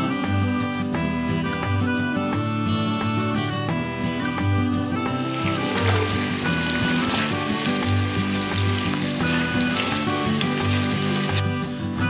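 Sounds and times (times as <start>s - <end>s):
guitar music: 0.0s - 12.0s
sausages sizzling in a frying pan: 5.1s - 11.5s.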